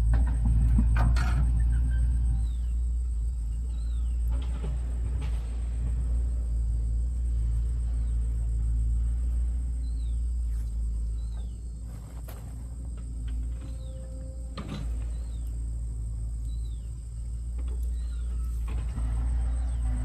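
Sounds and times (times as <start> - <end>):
steady low rumble: 0.0 - 20.0
bird chirping: 1.7 - 4.7, 13.3 - 20.0.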